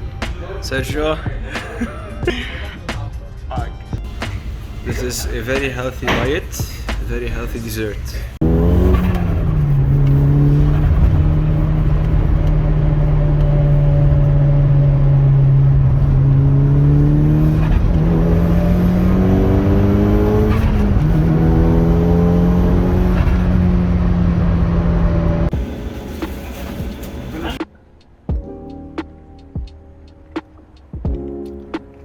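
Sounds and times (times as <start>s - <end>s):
vehicle engine running: 4.0s - 27.6s.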